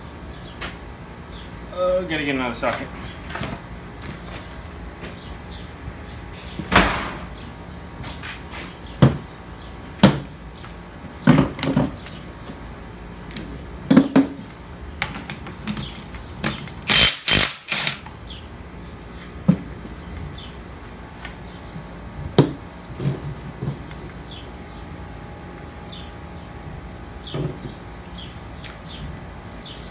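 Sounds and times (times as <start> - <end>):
rattling clatter of tools: 15.1 - 18.2
metal tools clanking: 16.8 - 18.2.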